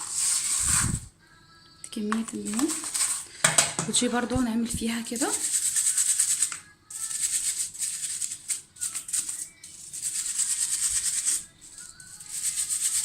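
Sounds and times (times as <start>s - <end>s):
brush scrubbing filter: 0.0s - 1.1s, 2.4s - 3.5s, 5.1s - 13.0s.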